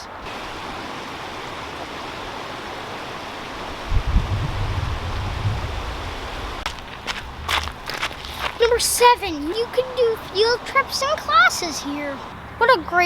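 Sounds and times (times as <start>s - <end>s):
water flowing over rocks: 0.0s - 4.3s, 5.1s - 12.3s
low rumble: 3.6s - 8.6s.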